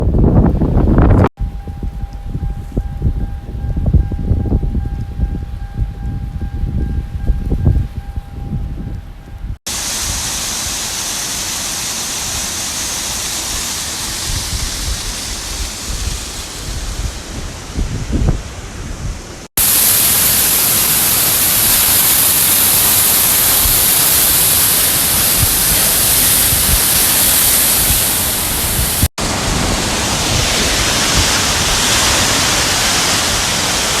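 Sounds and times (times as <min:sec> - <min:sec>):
rain falling: 0:19.6 - 0:34.0.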